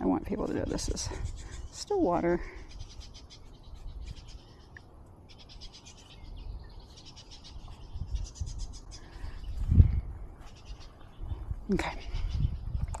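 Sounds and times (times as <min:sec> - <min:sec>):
wind on microphone: 0:07.4 - 0:13.0.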